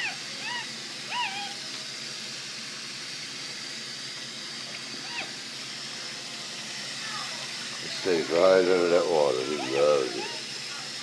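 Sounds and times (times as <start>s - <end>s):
tap water running into bathtub: 0.0s - 11.0s.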